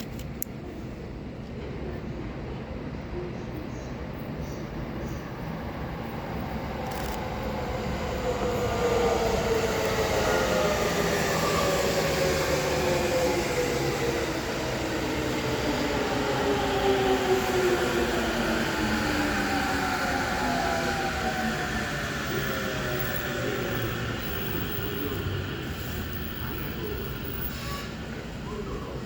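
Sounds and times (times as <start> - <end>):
wheel and track noise: 6.8 - 12.8, 21.0 - 28.0.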